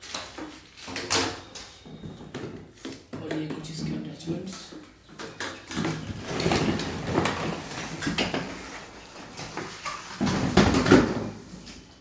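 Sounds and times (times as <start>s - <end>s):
vacuum parts clattering: 0.0s - 11.9s.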